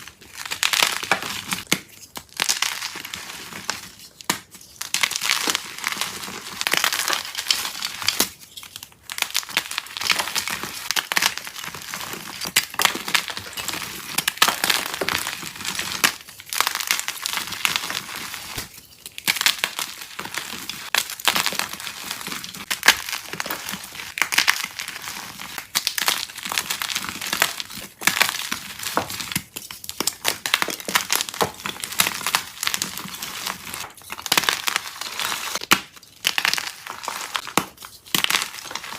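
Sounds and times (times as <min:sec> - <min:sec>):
chalk being crushed: 0:00.0 - 0:38.9.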